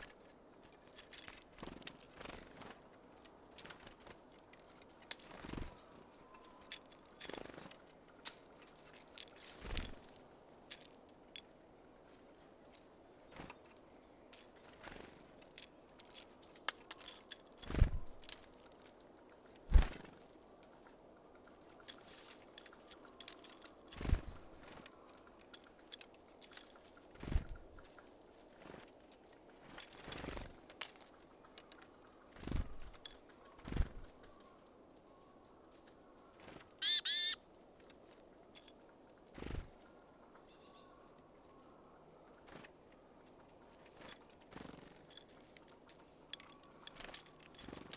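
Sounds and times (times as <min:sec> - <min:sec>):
birds tapping at seeds: 0:03.5 - 0:11.6, 0:12.6 - 0:34.6, 0:35.7 - 0:39.8, 0:42.4 - 0:47.9
faint high chirps: 0:36.8 - 0:37.4
harsh bird calls: 0:36.8 - 0:37.4.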